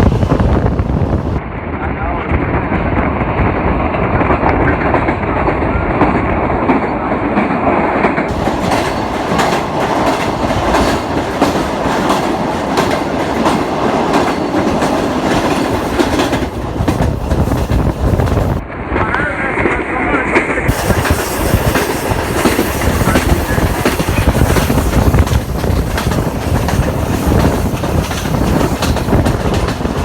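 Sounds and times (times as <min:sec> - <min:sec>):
train rumbling on track: 0:00.0 - 0:30.0
wheels clattering over rails: 0:08.0 - 0:18.6.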